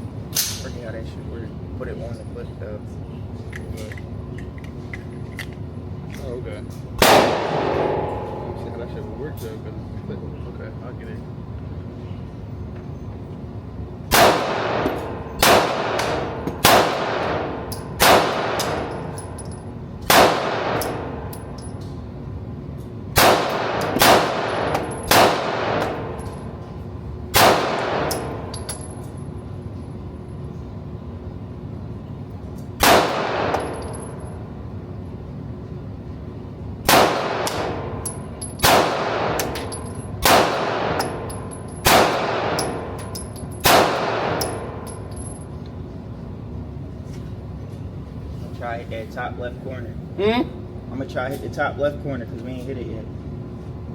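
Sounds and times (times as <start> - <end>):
gunshots with echoing tail: 7.0 - 8.6, 14.1 - 18.8, 23.2 - 26.0, 27.4 - 28.1, 32.8 - 33.6, 40.2 - 41.0, 41.9 - 42.6.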